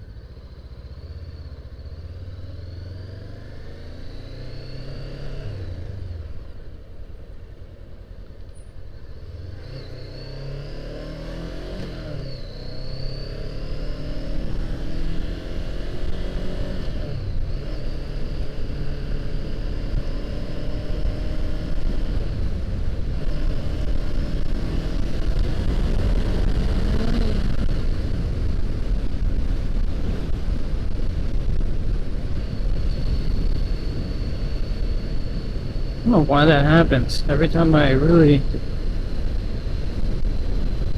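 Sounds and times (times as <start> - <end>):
low rumble of wind: 0.0 - 40.9
motorcycle engine running: 12.2 - 40.9.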